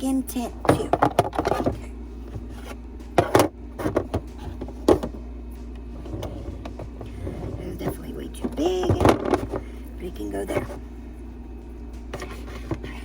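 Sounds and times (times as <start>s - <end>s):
containers clicking and knocking: 8.4s - 9.6s.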